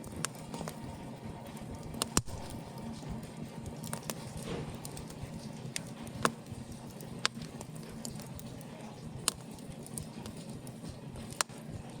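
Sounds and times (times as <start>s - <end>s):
low rush of burning fire: 0.0s - 12.0s
wood fire crackling: 0.0s - 12.0s
sharp pops of burning wood: 1.9s - 2.6s, 3.6s - 11.6s.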